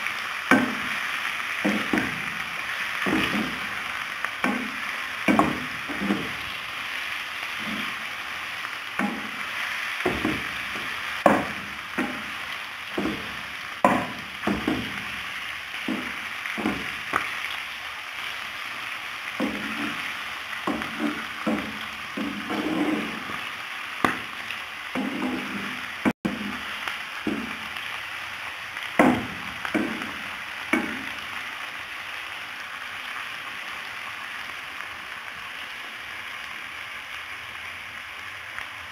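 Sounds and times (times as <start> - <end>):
meat sizzling in oil: 0.0 - 38.9
spatula scraping pan: 1.6 - 3.8, 4.4 - 6.5, 7.5 - 8.1, 9.0 - 15.1, 19.4 - 24.3, 25.0 - 26.6.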